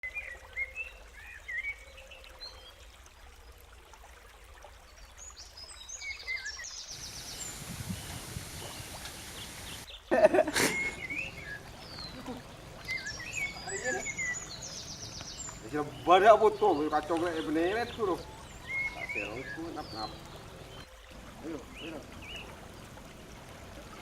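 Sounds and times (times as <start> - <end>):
small birds chirping: 5.3 - 24.0
steady hiss: 6.9 - 16.6.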